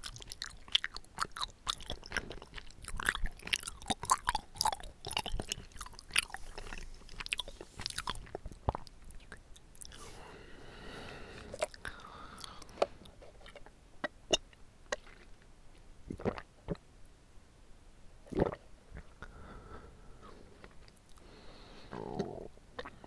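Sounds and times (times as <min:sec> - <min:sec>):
wet chewing clicks and smacks: 0:00.0 - 0:10.0, 0:11.5 - 0:15.3.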